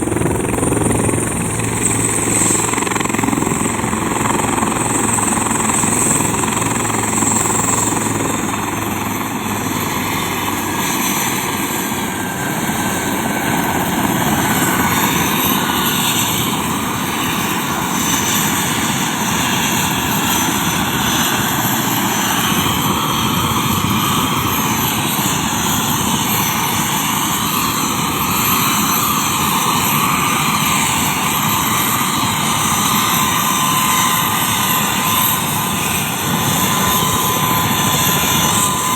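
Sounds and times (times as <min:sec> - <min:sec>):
helicopter rotor chopping: 0:00.0 - 0:38.9.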